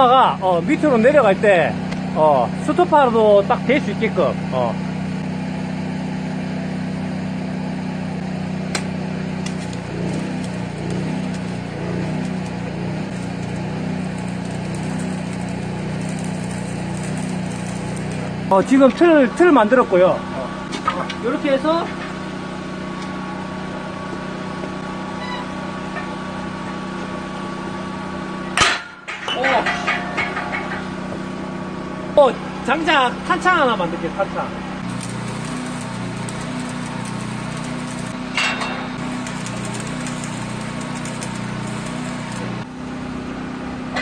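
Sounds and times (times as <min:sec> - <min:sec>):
low mechanical hum: 0:00.0 - 0:44.0
motor humming: 0:08.2 - 0:18.8, 0:34.6 - 0:42.8.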